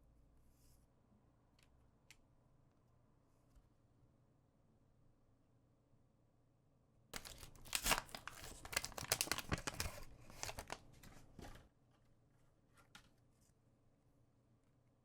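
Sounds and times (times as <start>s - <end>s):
wrapper tearing and crinkling: 7.2s - 11.0s.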